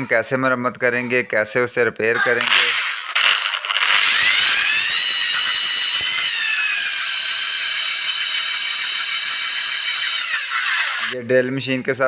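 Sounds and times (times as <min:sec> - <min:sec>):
electric drill whining: 0:02.4 - 0:11.2.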